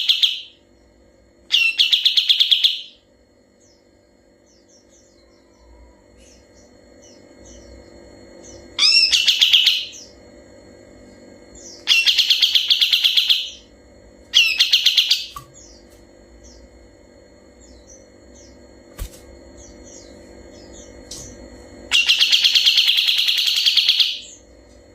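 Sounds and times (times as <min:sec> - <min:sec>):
faint bird chirps: 0:00.0 - 0:10.2, 0:11.5 - 0:13.7, 0:19.5 - 0:24.5
bird singing rattling trills: 0:00.0 - 0:10.4, 0:11.0 - 0:24.8
steady low hum: 0:00.0 - 0:24.9.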